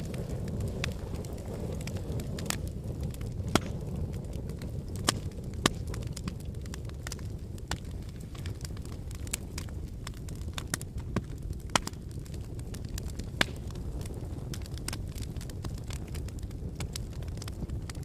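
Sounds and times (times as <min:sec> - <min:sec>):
fire crackling in fireplace: 0:00.0 - 0:18.0.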